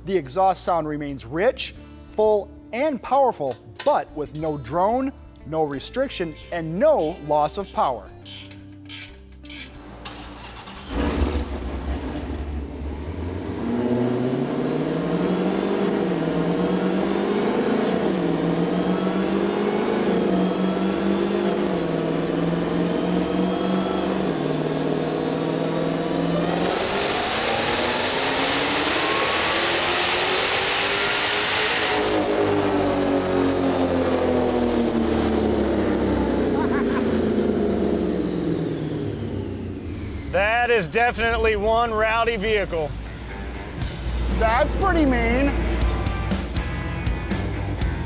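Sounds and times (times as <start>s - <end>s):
car engine revving: 9.8s - 48.0s.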